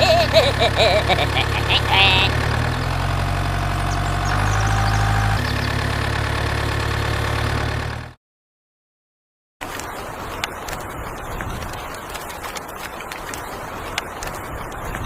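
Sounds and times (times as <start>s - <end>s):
engine idling hum: 0.0s - 8.2s.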